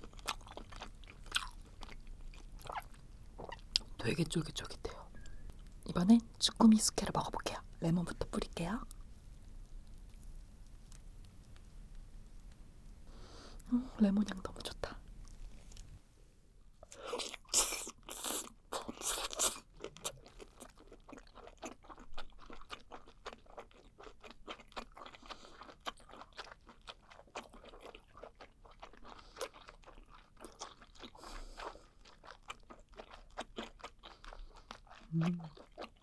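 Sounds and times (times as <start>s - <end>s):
chewing with mouth clicks: 0.0s - 3.9s, 16.8s - 36.0s
biting crunches: 17.2s - 36.0s.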